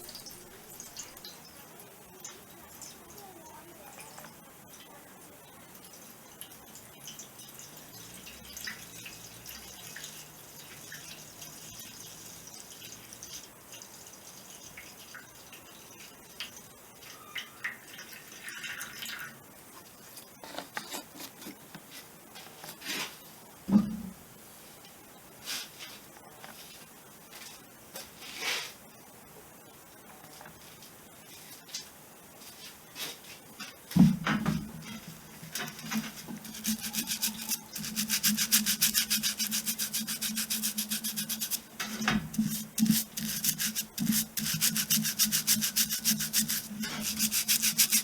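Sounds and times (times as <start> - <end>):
drips: 0.0 - 3.3, 5.7 - 19.4
metal parts washed in liquid: 34.7 - 48.0.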